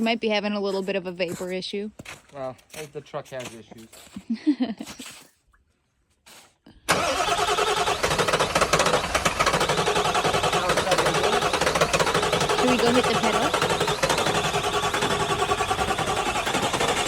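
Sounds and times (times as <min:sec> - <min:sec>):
diesel engine cranking on starter: 0:06.9 - 0:17.0
diesel engine rapid chatter: 0:06.9 - 0:17.0.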